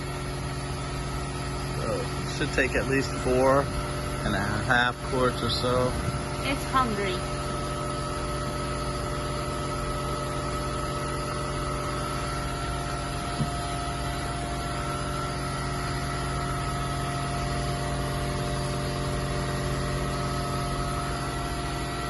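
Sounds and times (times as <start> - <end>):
shop machinery humming: 0.0 - 22.0.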